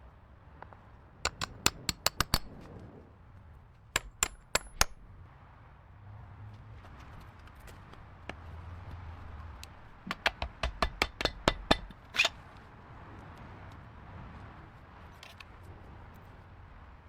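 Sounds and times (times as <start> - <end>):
sharp metal clicks and knocks: 0.6 - 2.6, 4.0 - 5.1, 9.6 - 12.4
metal scraping: 10.1 - 12.4.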